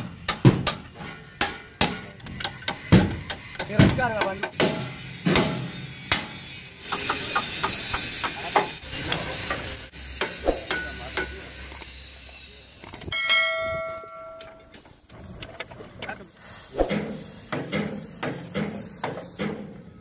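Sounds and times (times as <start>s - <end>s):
steel ringing bell-like: 10.8s - 14.8s.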